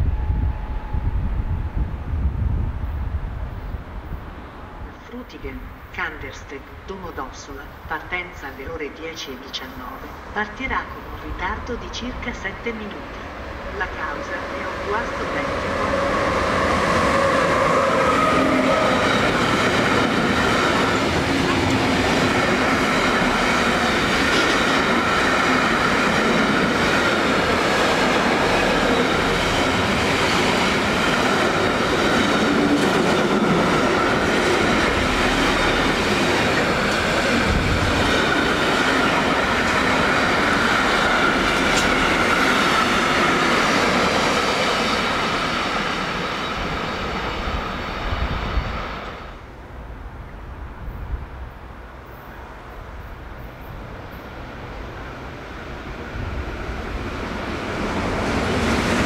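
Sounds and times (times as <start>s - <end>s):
train passing with wheel clatter: 0.0s - 59.0s.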